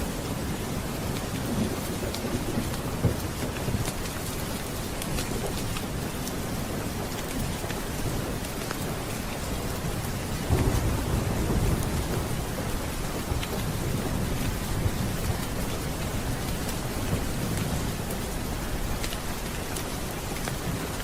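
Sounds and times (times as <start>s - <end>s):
heavy rain: 0.0s - 21.0s
rolling thunder: 10.3s - 17.9s.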